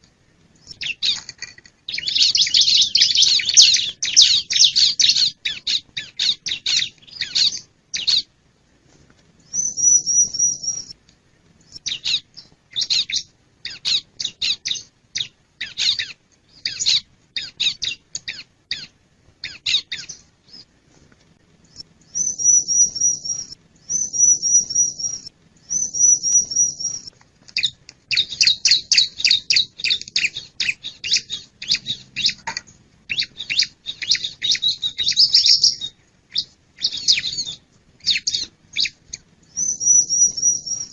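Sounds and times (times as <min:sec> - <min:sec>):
bird chirping: 0:00.6 - 0:08.3, 0:09.4 - 0:11.0, 0:11.6 - 0:20.8, 0:21.6 - 0:40.9
bird trills: 0:00.6 - 0:08.3, 0:09.5 - 0:10.9, 0:21.7 - 0:40.9.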